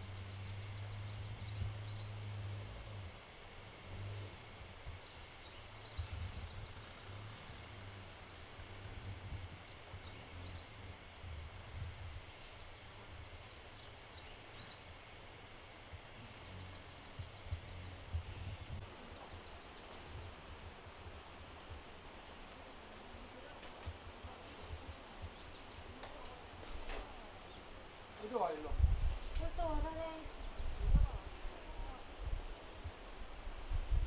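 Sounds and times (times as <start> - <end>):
wind rumble: 0.0 - 26.0, 27.4 - 34.0
small bird chirping: 4.3 - 8.5, 9.1 - 11.1, 11.8 - 15.2.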